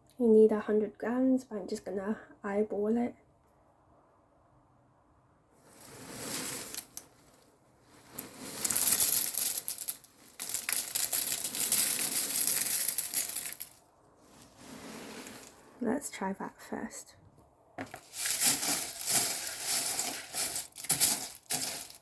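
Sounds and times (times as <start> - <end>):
cornflakes pouring into bowl: 5.8 - 7.0, 7.9 - 13.8, 17.9 - 22.0
bag crinkling: 8.0 - 13.8, 17.8 - 22.0.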